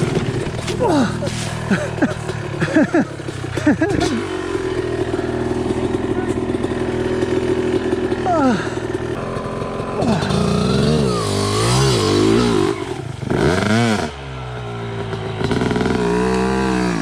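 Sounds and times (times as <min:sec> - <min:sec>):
two-stroke dirt bike engine revving: 0:00.0 - 0:17.0.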